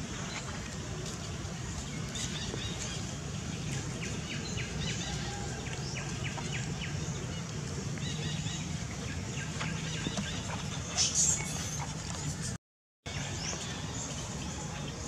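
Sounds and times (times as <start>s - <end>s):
steady low rumble: 0.0s - 11.0s
bird chirping: 1.8s - 12.5s.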